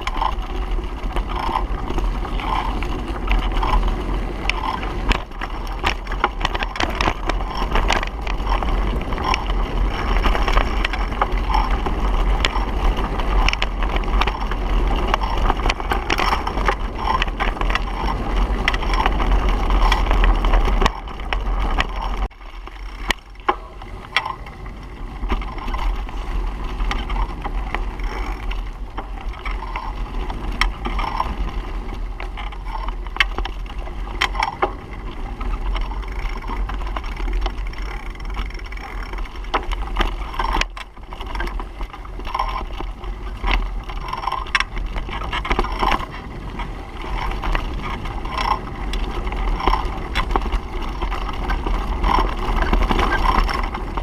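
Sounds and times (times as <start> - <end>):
bicycle clicks and rattles: 0.0 - 54.0
wind buffeting microphone: 0.0 - 54.0.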